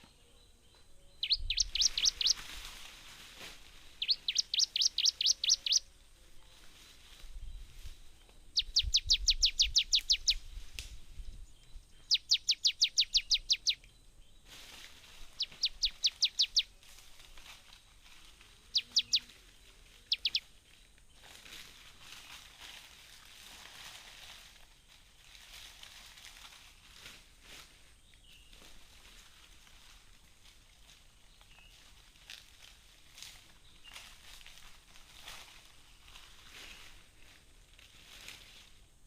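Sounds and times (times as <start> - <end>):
bird singing high notes: 1.2 - 2.4, 4.0 - 5.8, 18.8 - 19.3, 20.1 - 20.4.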